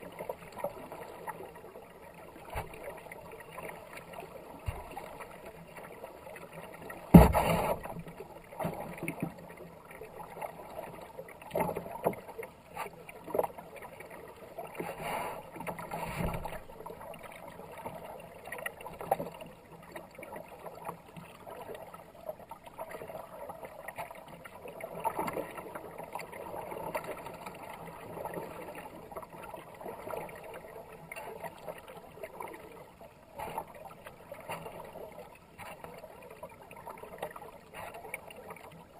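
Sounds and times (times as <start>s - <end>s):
paddle splashing through water: 0.1s - 10.8s, 11.4s - 20.8s
hollow knocks against hull: 7.1s - 8.0s.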